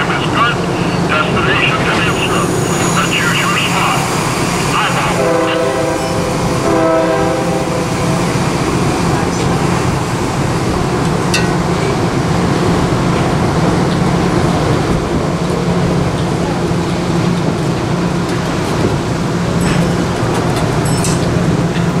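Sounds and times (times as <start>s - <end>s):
train rumbling: 0.0s - 22.0s
train horn chord: 4.7s - 9.6s.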